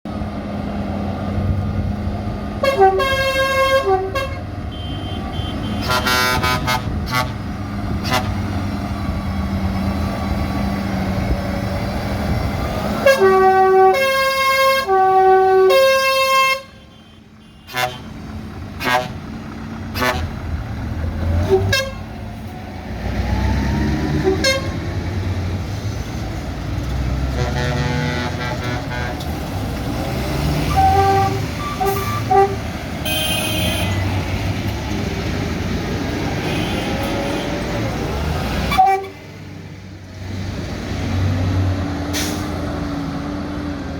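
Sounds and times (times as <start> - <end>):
truck engines running: 0.0 - 43.9
truck horn blasts: 2.6 - 8.6, 13.0 - 18.2, 18.8 - 19.3, 19.9 - 20.4, 21.4 - 22.1, 24.2 - 24.8, 27.2 - 29.4, 30.6 - 34.2, 36.3 - 37.6, 38.7 - 39.3.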